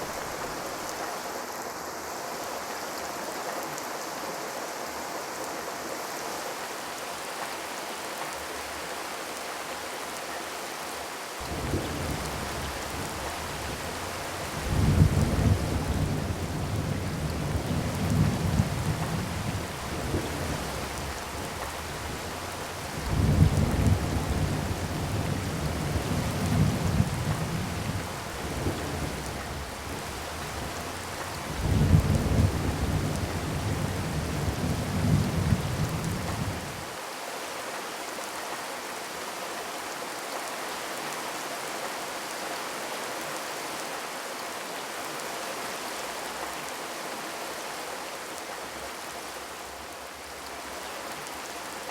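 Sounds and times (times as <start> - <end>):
rain hiss: 0.0 - 51.9
low rolling rumbles: 11.5 - 36.8.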